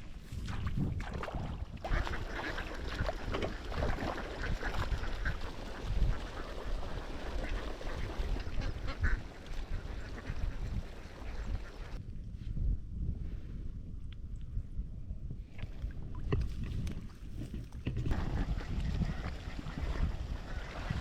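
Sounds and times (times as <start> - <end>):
ducks quacking: 1.9 - 12.0.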